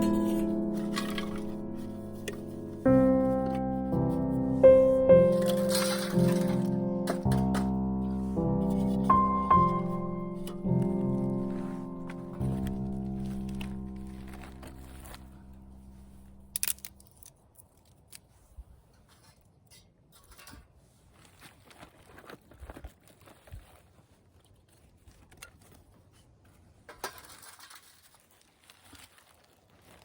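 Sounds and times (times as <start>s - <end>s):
background music: 0.0s - 16.9s
small objects clicking and rustling: 0.0s - 18.4s, 19.0s - 30.0s.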